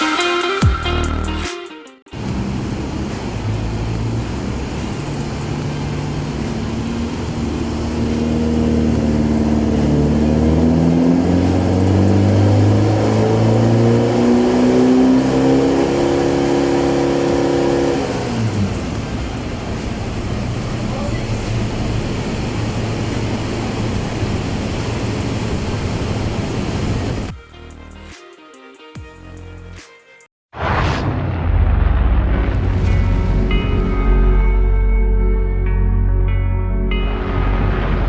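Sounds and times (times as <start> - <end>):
pickup truck exhaust accelerating: 2.1 - 27.3.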